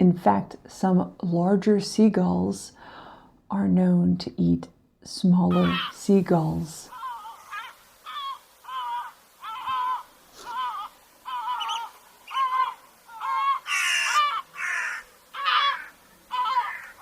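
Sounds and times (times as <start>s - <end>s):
gulls calling: 5.5s - 17.0s
rough gull squawks: 6.9s - 17.0s.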